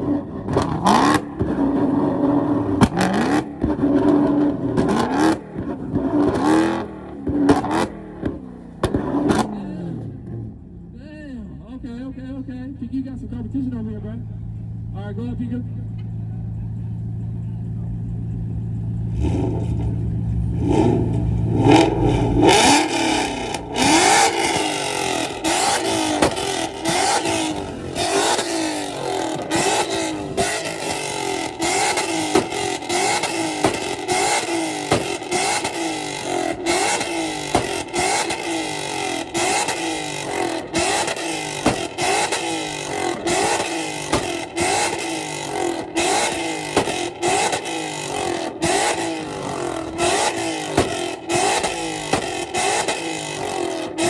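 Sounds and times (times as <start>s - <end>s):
car engine revving: 0.0s - 11.0s, 12.8s - 54.0s.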